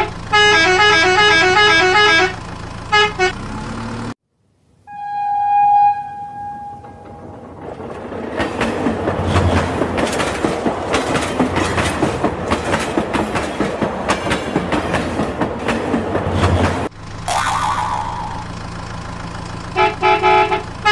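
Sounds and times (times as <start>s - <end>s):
train wheels clattering on track: 6.8s - 16.9s.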